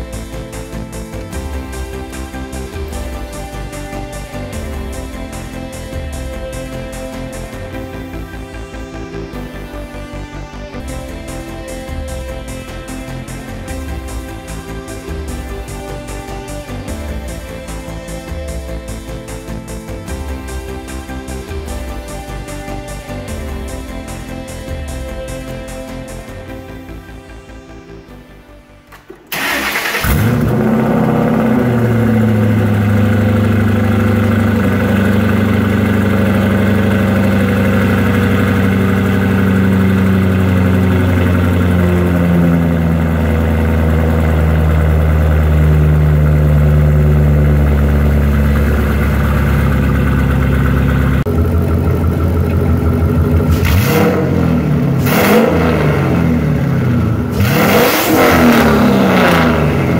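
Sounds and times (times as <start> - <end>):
car engine starting and idling: 0.0 - 59.9
engine revving: 29.3 - 59.9.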